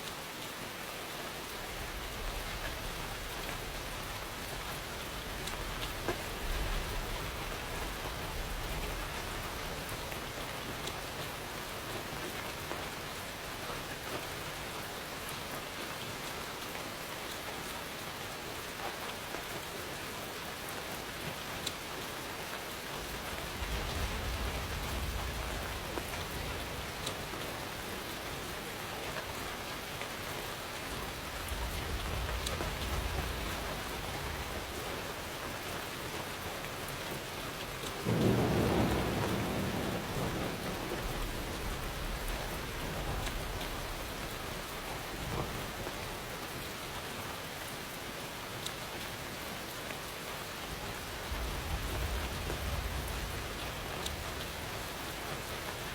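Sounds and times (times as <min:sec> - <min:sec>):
steady rain falling: 0:00.0 - 0:55.9
distant thunder rumbling: 0:23.0 - 0:28.7, 0:30.8 - 0:36.8, 0:37.6 - 0:46.3, 0:50.6 - 0:55.9
loud thunderclap: 0:23.3 - 0:27.3, 0:38.0 - 0:45.9, 0:51.2 - 0:55.8.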